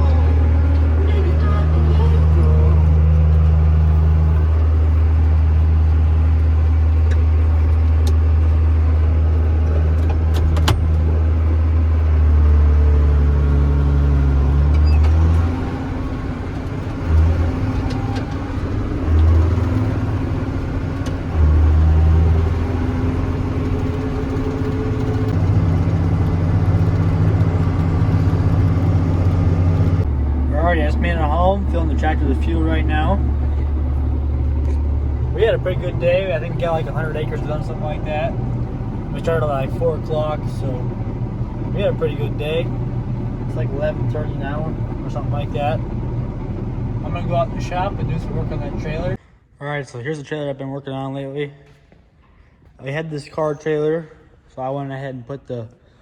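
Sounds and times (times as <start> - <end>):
tractor diesel engine running: 0.0 - 49.2.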